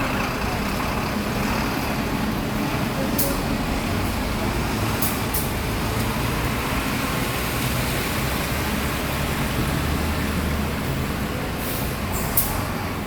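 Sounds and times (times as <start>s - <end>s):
bus diesel engine idling: 0.0s - 6.8s, 10.1s - 13.0s.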